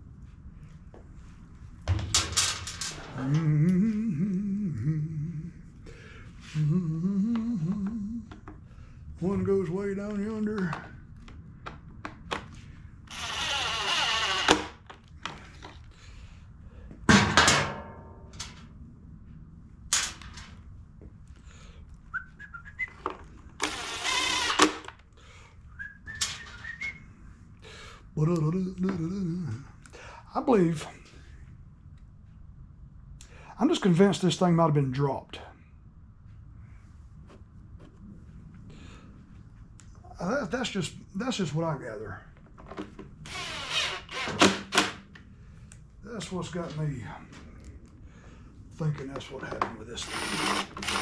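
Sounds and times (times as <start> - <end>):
hardware clattering: 1.9 - 3.1
man humming a low tune: 3.1 - 5.8, 6.4 - 8.5, 28.2 - 29.7
power driver whirring: 13.1 - 14.8, 23.6 - 25.0, 43.2 - 45.0, 50.0 - 51.0
short whistled notes: 22.1 - 23.0, 25.7 - 27.0.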